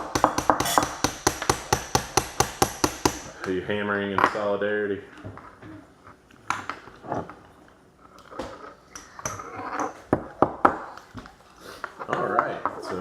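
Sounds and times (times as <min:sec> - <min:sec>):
small hammer tapping wood: 0:00.0 - 0:03.3.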